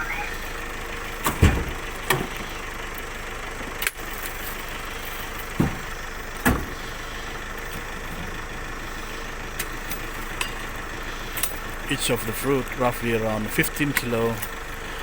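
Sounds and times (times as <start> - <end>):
vehicle engine idling: 0.0 - 15.0
heavy thumps: 5.5 - 6.8.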